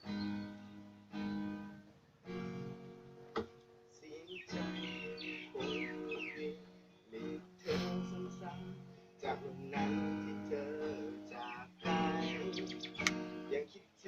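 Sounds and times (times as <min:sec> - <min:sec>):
acoustic guitar strummed chords: 0:00.0 - 0:14.0.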